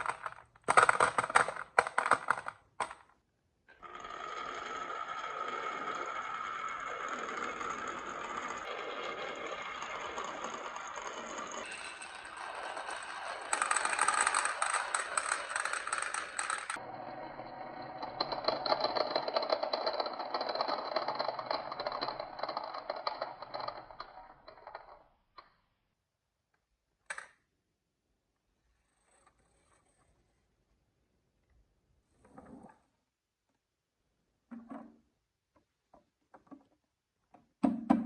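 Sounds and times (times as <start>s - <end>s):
marbles rattling down wooden run: 0.0s - 3.1s, 3.8s - 25.0s.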